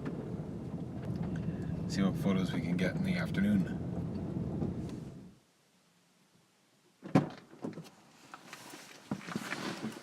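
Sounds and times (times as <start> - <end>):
low steady rumble: 0.0 - 5.5.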